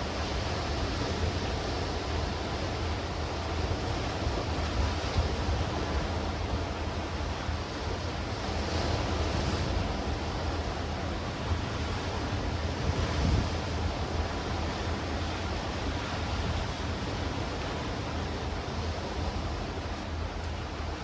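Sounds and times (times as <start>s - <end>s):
sea waves washing against rocks: 0.0s - 21.0s
wind buffeting microphone: 8.1s - 21.0s.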